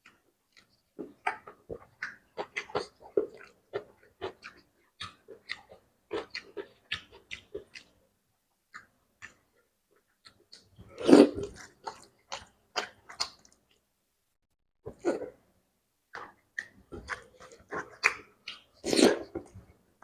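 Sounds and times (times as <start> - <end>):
person chewing: 0.0 - 7.9, 8.7 - 13.8, 16.1 - 19.6
wet lip smacks and mouth clicks: 11.4 - 13.8, 16.2 - 19.6.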